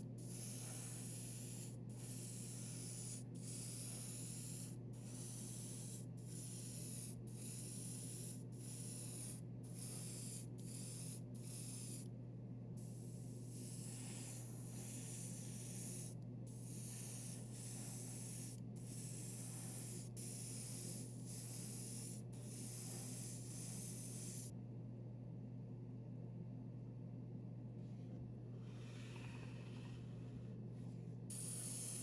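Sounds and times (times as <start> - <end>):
airbrush spraying hiss: 0.0 - 12.1, 12.8 - 24.5, 31.3 - 32.0.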